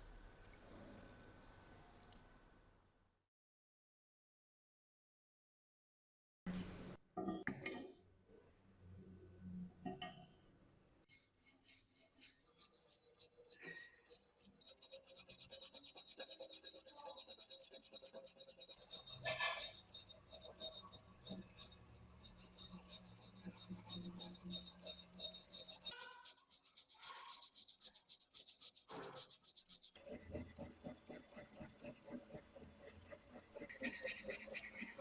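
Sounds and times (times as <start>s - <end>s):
abrasive strokes on metal: 11.1s - 15.2s, 15.9s - 35.0s.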